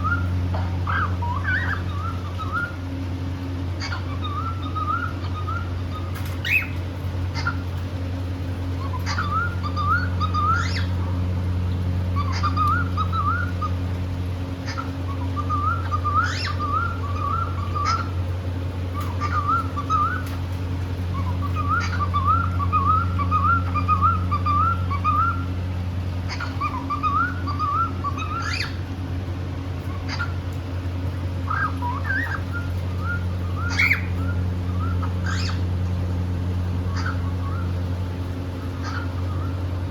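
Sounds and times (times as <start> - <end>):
cockatiel whistling: 0.0 - 2.8, 3.8 - 6.8, 8.8 - 10.9, 12.2 - 13.7, 14.6 - 18.1, 18.9 - 20.4, 21.1 - 25.5, 26.3 - 28.8, 29.9 - 30.3, 31.5 - 35.6, 36.9 - 37.7, 38.8 - 39.6
low hum: 0.0 - 39.9.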